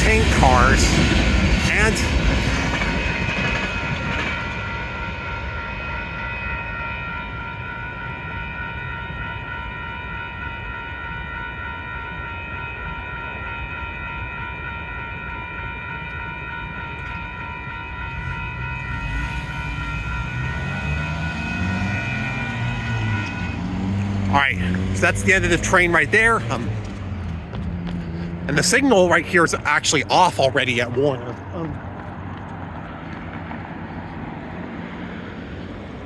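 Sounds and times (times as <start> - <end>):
freight train rolling rumble: 0.0 - 7.3
high-pitched ringing tones: 0.0 - 27.3.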